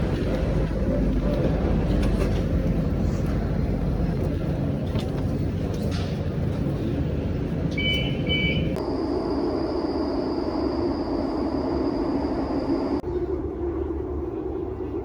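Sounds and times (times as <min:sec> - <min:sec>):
low rumbling background noise: 0:00.0 - 0:15.0
double electronic beep: 0:07.8 - 0:08.8
high-pitched whine: 0:08.8 - 0:15.0.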